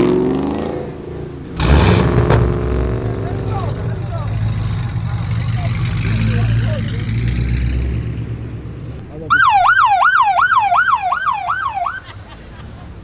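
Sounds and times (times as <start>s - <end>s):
car engine low rumble: 0.0s - 13.0s
police siren yelping: 9.3s - 12.3s.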